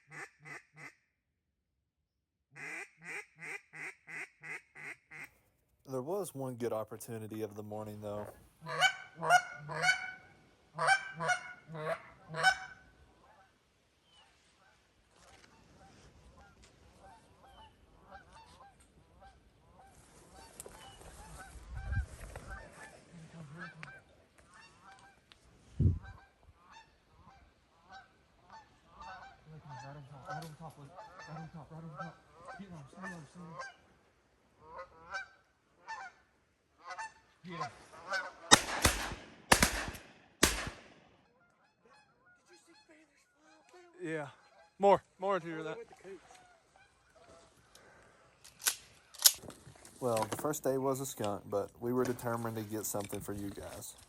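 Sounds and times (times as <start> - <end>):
geese honking: 7.7 - 13.5, 15.6 - 21.6, 22.5 - 25.2, 26.1 - 34.0, 34.6 - 45.5, 46.2 - 47.9
shotgun blasts: 38.5 - 41.1.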